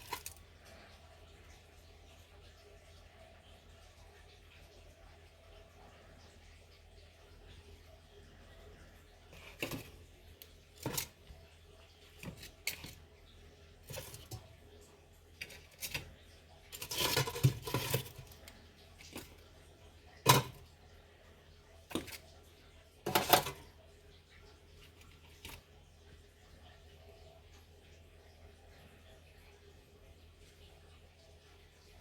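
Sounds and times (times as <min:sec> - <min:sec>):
kitchenware clinking and knocking: 0:10.8 - 0:11.2, 0:16.8 - 0:18.4, 0:20.2 - 0:20.6, 0:23.1 - 0:23.6.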